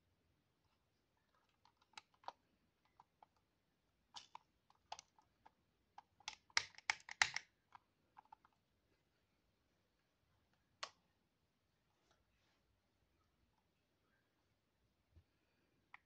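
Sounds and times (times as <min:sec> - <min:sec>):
plastic toy packaging clicks: 0:06.2 - 0:07.5.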